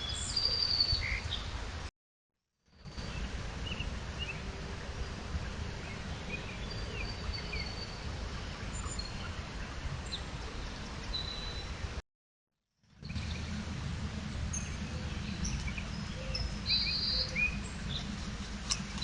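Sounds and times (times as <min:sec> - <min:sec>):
low background rumble: 0:13.0 - 0:19.0.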